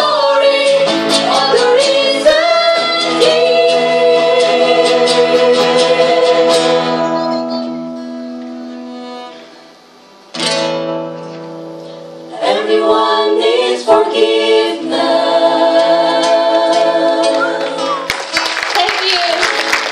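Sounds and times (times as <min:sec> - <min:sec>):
voices singing held notes: 0:00.0 - 0:07.9, 0:12.3 - 0:18.1
acoustic guitar strumming: 0:00.0 - 0:14.3.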